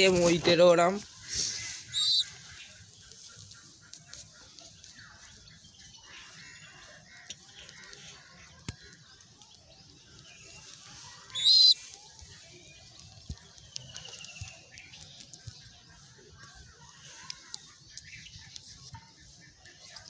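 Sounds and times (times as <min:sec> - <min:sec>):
birds chirping faintly: 0:00.0 - 0:20.0
loud high-pitched bird call: 0:11.2 - 0:11.9.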